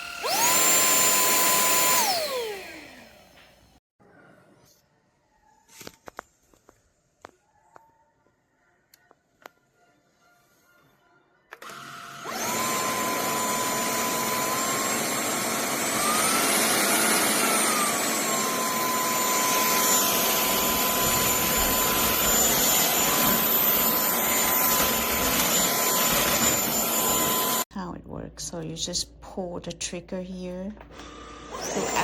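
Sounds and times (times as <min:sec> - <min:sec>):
stick vacuum motor whining: 0:00.0 - 0:03.8, 0:11.5 - 0:27.7, 0:30.8 - 0:32.0.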